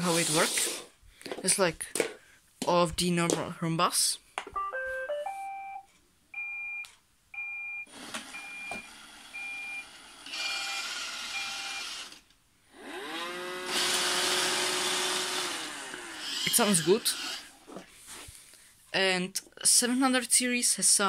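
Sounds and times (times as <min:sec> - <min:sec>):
vacuum motors whining and hissing: 0:00.0 - 0:00.9, 0:12.8 - 0:17.6
robot vacuum beeps: 0:06.4 - 0:08.8, 0:09.4 - 0:12.0.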